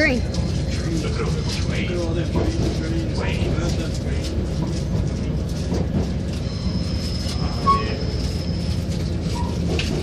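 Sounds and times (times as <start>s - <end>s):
train wheels rumbling on track: 0.0s - 10.0s
brief squeak: 6.4s - 9.8s.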